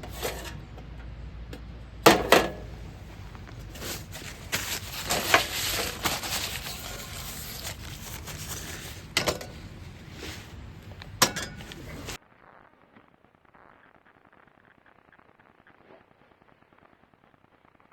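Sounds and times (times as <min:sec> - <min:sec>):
rustling handling noise: 0:02.2 - 0:12.2.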